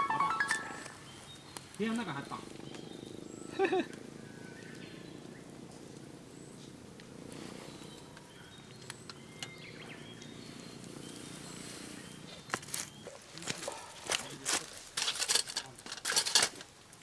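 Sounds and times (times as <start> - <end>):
campfire crackling and popping: 0.4 - 3.2, 3.9 - 9.6.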